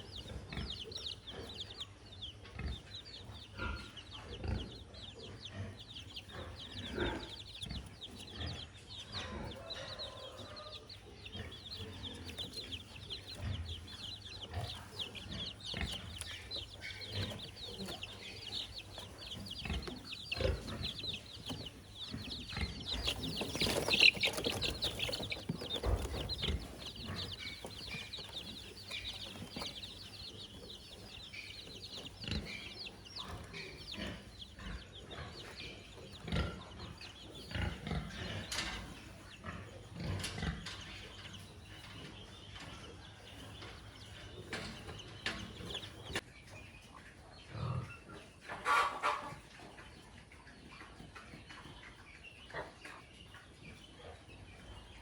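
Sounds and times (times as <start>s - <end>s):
chickens chirping: 0.0s - 55.0s.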